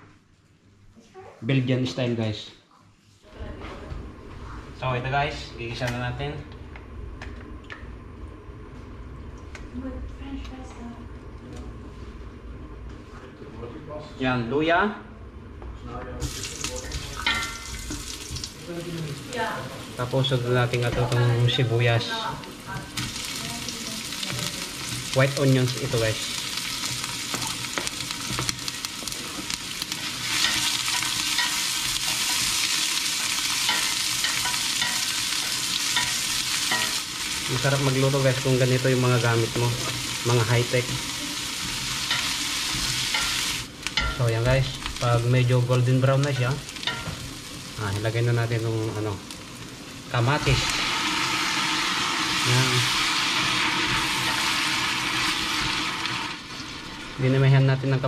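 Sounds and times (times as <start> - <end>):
onions sizzling in a pan: 16.2 - 58.0.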